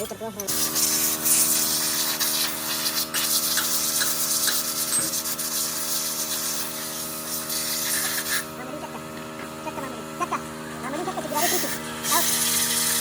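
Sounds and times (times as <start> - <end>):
machine humming: 0.0 - 13.0
rasping hiss: 0.6 - 8.5.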